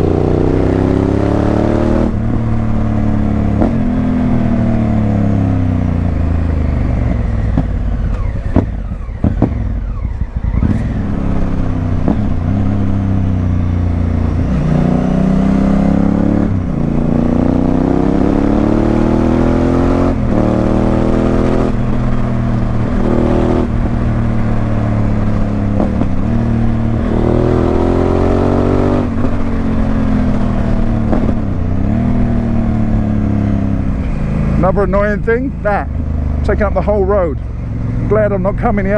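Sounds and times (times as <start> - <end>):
motorcycle engine revving through gears: 0.0 - 38.9.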